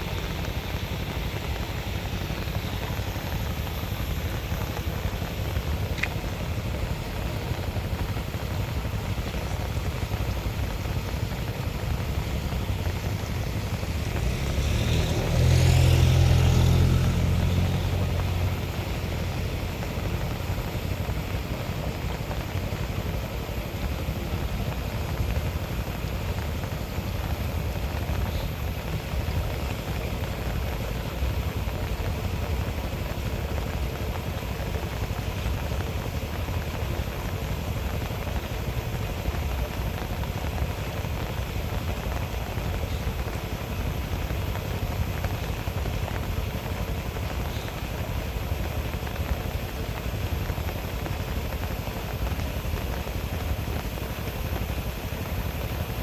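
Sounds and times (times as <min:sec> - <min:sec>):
steady rushing noise: 0:00.0 - 0:56.0
vehicle passing by: 0:11.8 - 0:20.6.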